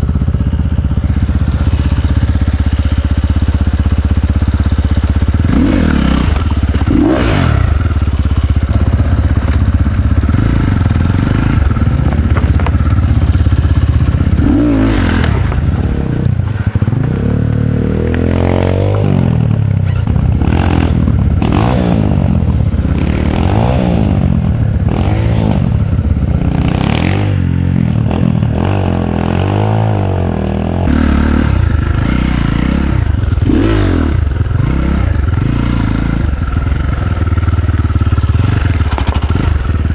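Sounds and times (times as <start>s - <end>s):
dirt bike engine revving: 0.0s - 39.9s
clattering and scraping of bike: 0.1s - 18.2s, 18.8s - 21.7s, 31.2s - 39.9s.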